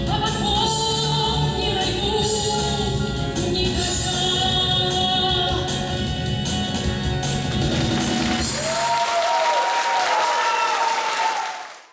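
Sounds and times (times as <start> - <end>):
pop band playing: 0.0 - 9.1
audience applause: 7.7 - 11.9.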